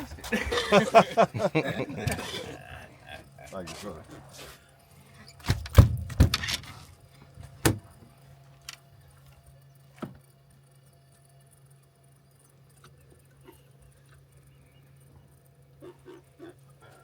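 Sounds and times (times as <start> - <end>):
steady low hum: 0.0 - 17.0
heavy thumps and knocks: 5.5 - 6.5.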